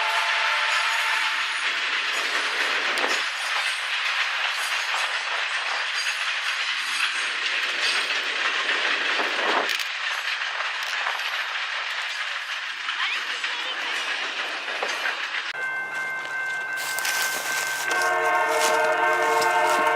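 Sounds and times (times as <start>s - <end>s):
train cars rolling on rails: 0.0s - 19.9s
wheel clicks on rail joints: 1.5s - 15.6s.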